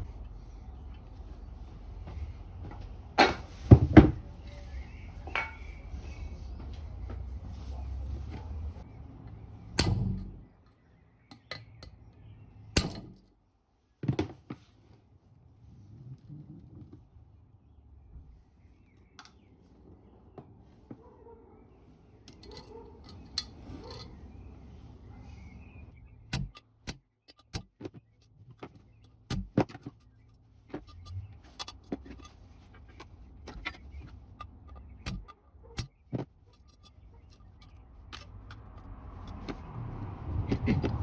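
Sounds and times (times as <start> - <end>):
metal parts clinking: 22.3 - 24.2, 28.2 - 39.6.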